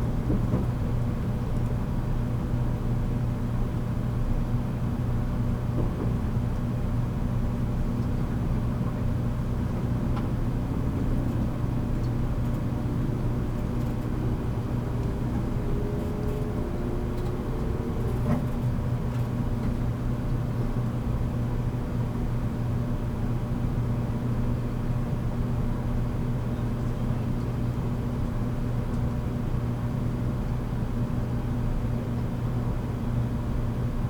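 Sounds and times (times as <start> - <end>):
train interior rumble and hum: 0.0 - 34.0
faint rising tone: 10.9 - 19.5.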